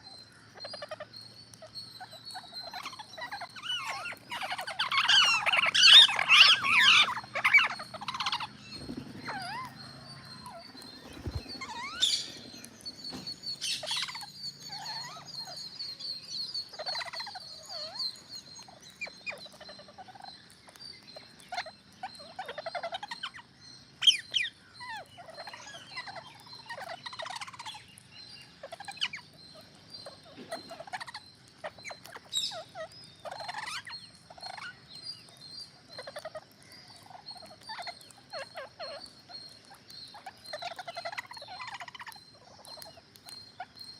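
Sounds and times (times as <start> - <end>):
parrots squawking: 2.0 - 15.6, 16.7 - 18.1, 30.0 - 34.8, 39.7 - 42.9.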